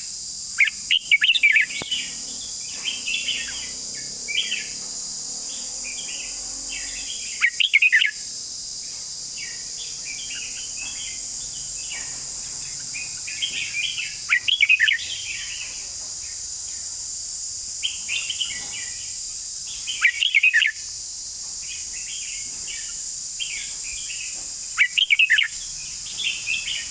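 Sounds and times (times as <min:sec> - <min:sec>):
steady high hiss: 0:00.0 - 0:26.9
soft bird chirping: 0:00.6 - 0:08.3, 0:09.3 - 0:17.0, 0:17.8 - 0:20.9, 0:21.6 - 0:26.9.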